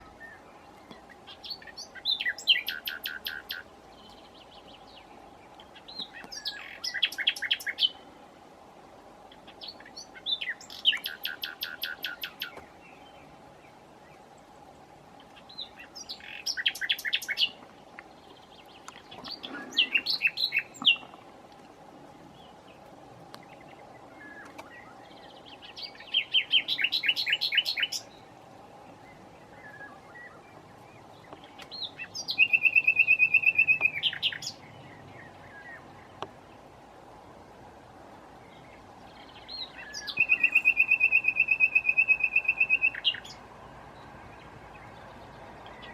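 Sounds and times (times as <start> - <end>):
nightingale singing: 0.0 - 8.0, 9.3 - 13.3, 15.2 - 21.2, 22.3 - 36.4, 38.4 - 45.9.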